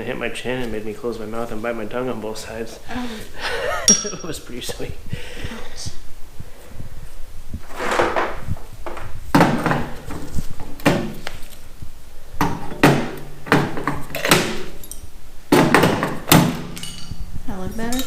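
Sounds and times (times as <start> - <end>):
knocks on car sheet metal: 15.5 - 16.8.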